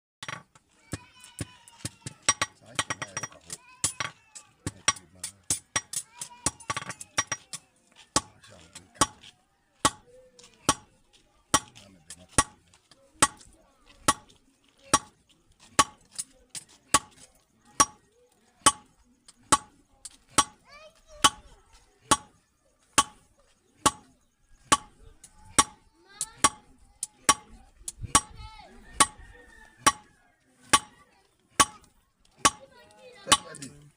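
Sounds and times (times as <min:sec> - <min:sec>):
hammer striking metal on anvil: 0:22.9 - 0:23.2.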